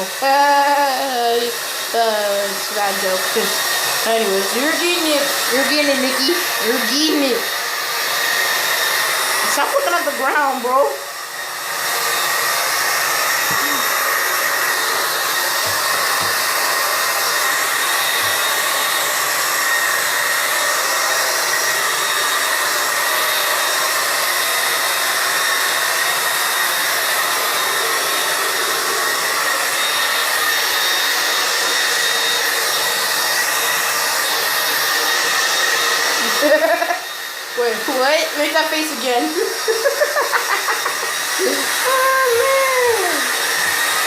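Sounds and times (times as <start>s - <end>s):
dog dryer blowing air: 0.0s - 44.0s.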